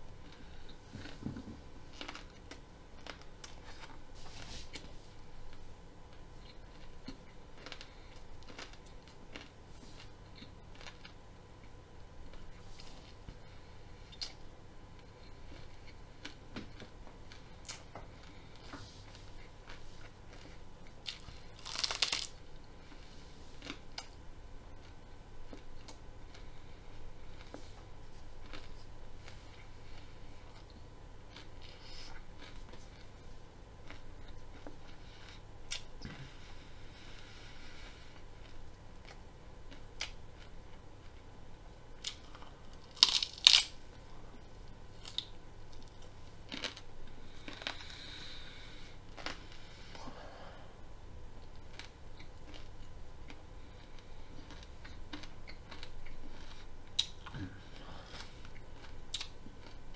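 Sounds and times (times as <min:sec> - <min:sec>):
person chewing raw broccoli: 0:00.1 - 0:41.3, 0:42.0 - 0:50.1, 0:51.4 - 0:59.9.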